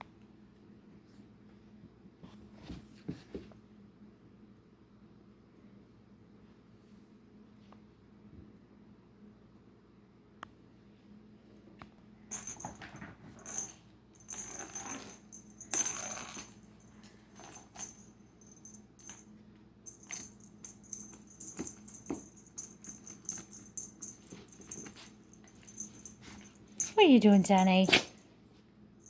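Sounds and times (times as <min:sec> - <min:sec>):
animals scuffling: 0:20.0 - 0:28.2.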